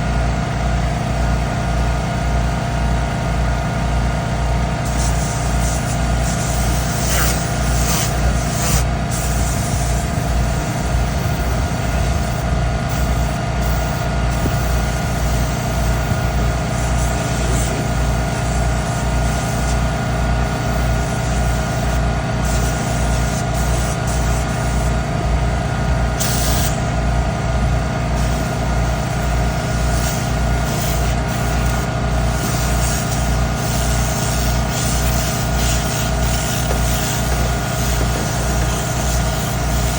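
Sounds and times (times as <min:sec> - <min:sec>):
air compressor throbbing: 0:00.0 - 0:39.9
air nozzle hissing bursts: 0:04.8 - 0:25.2, 0:26.2 - 0:26.9, 0:28.2 - 0:39.9.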